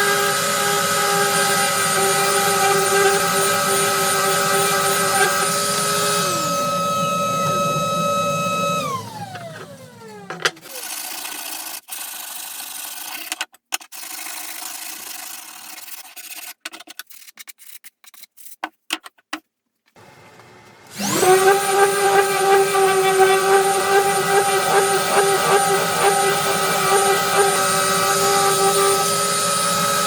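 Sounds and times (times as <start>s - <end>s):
power tool whining: 0.0s - 10.9s, 20.0s - 30.0s
rough rubbing on wood: 21.2s - 30.0s.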